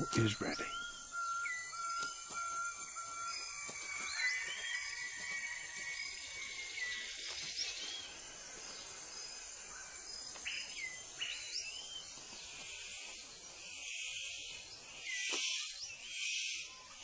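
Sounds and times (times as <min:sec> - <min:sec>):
whistled bird calls: 0:00.0 - 0:08.9, 0:13.8 - 0:17.0
insects droning: 0:00.0 - 0:17.0.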